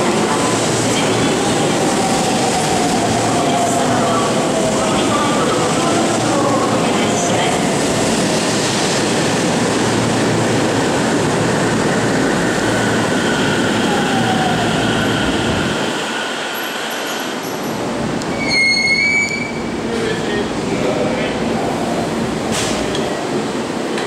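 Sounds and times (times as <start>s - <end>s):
squealing brakes: 18.3s - 19.7s.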